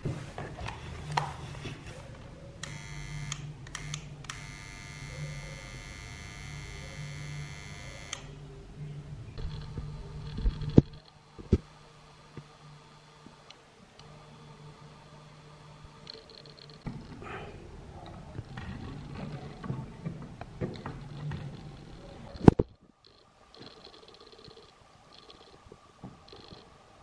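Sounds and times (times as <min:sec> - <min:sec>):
low electrical hum: 0:00.0 - 0:27.0
high-pitched electronic whine: 0:09.4 - 0:13.2, 0:14.1 - 0:17.1.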